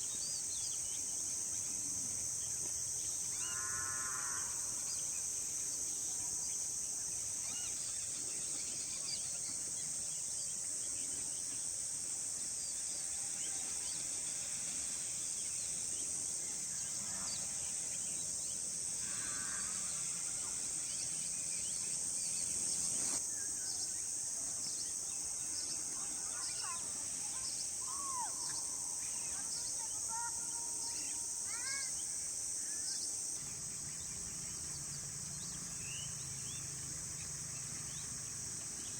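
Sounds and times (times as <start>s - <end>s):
high-pitched insect drone: 0.4s - 9.3s, 12.8s - 24.2s.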